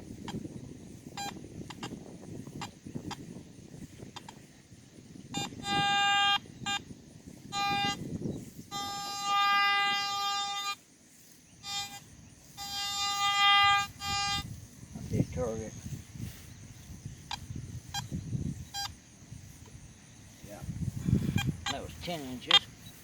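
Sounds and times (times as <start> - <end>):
metal detector beeps: 1.1 - 2.0, 5.3 - 10.8, 11.5 - 14.6, 17.2 - 19.0, 21.2 - 23.0
metal detector held tones: 1.1 - 2.0, 5.3 - 10.8, 11.4 - 14.7, 17.2 - 19.0, 21.2 - 23.0.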